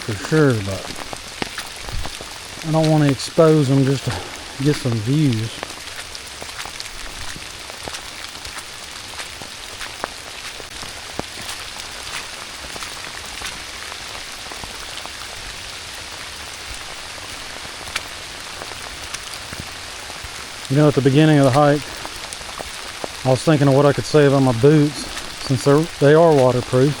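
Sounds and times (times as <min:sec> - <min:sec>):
raindrops ticking close by: 0:00.0 - 0:27.0
steady rain hiss: 0:00.0 - 0:27.0.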